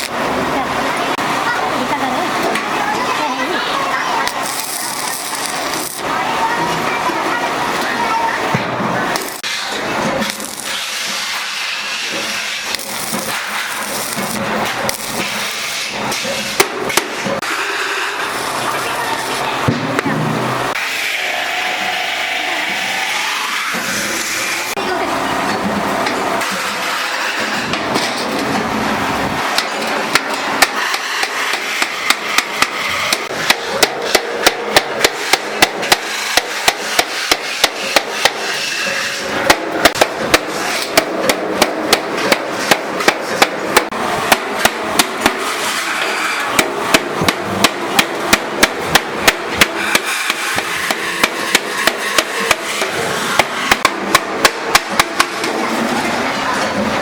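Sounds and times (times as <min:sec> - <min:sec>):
workshop noise: 0:00.0 - 0:57.0
hammer striking metal: 0:29.6 - 0:38.6, 0:39.4 - 0:45.5, 0:46.5 - 0:55.6.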